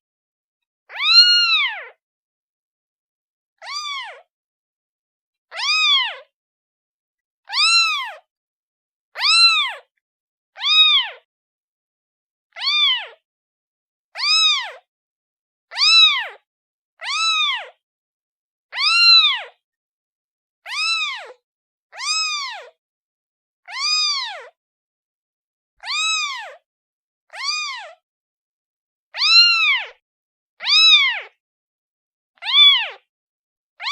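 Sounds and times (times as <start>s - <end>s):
kitten meowing: 0.9s - 2.0s, 3.6s - 4.3s, 5.5s - 6.3s, 7.5s - 8.3s, 9.2s - 9.9s, 10.6s - 11.3s, 12.5s - 13.2s, 14.2s - 14.8s, 15.7s - 16.4s, 17.0s - 17.8s, 18.7s - 19.6s, 20.7s - 22.8s, 23.7s - 24.6s, 25.8s - 26.6s, 27.3s - 28.0s, 29.2s - 30.0s, 30.6s - 31.4s, 32.4s - 33.0s.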